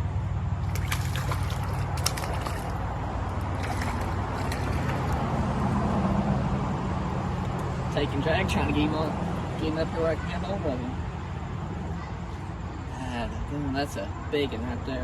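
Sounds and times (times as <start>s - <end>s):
fish splashing at surface: 0.6s - 5.4s
creek water running: 0.6s - 6.0s.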